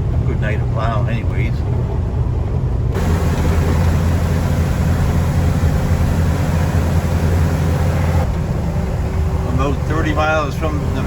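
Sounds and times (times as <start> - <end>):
truck diesel engine droning: 0.0 - 11.0
road and plow hiss: 2.9 - 11.0.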